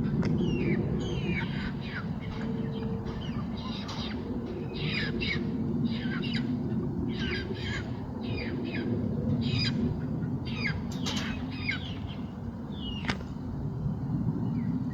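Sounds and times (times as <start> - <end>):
chickens squawking: 0.5 - 12.1.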